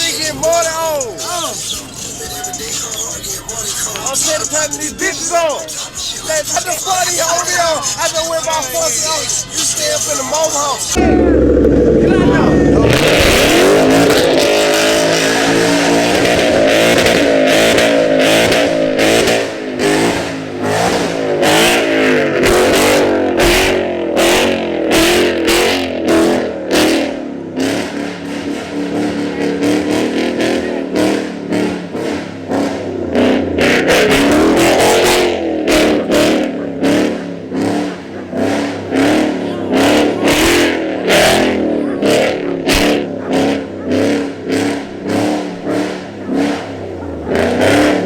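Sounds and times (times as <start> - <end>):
vehicle engine revving: 10.8 - 48.0
sharp exhaust pops: 10.9 - 21.8.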